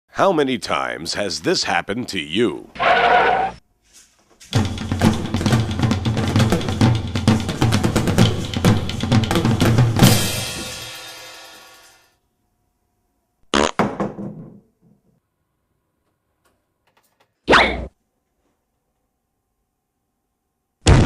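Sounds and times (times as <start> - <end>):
drum kit playing: 4.4 - 12.0
cymbal crash: 10.0 - 12.1.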